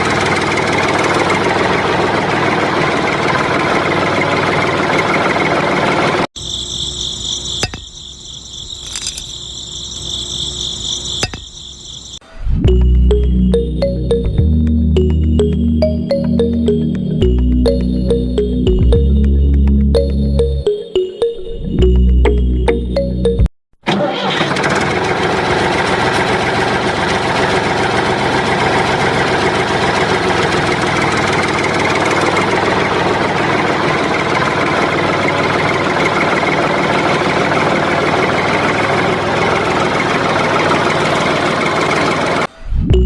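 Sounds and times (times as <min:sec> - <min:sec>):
small engine running: 0:00.0 - 0:07.5, 0:23.9 - 0:42.5.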